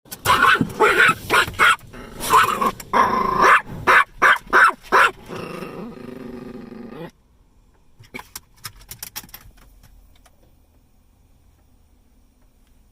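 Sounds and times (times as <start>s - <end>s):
quiet steady sound: 0.1s - 12.9s
dog barking: 0.2s - 2.7s, 3.3s - 5.2s.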